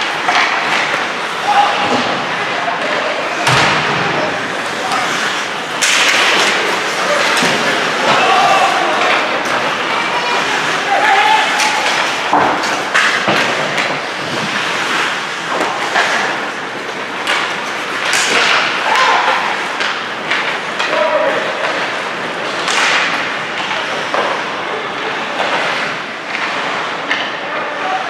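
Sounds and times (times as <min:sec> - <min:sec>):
skates scraping ice: 0:00.0 - 0:28.0
puck knocking against boards: 0:11.5 - 0:16.6.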